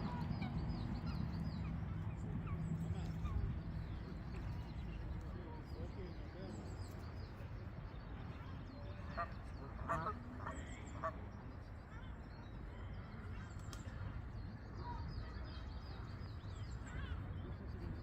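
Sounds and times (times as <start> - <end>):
steady low rumble: 0.0 - 8.4
waterfowl honking: 9.1 - 11.2.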